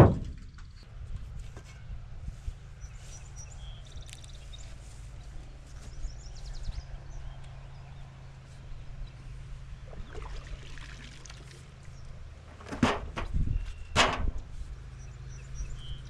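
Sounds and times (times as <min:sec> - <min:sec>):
steady low rumble: 0:00.0 - 0:16.0
small birds chirping: 0:01.9 - 0:10.6, 0:13.2 - 0:16.0.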